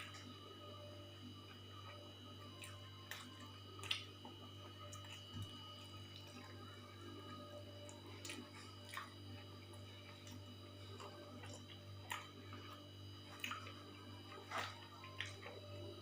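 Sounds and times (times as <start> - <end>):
food being chewed: 1.3 - 16.0.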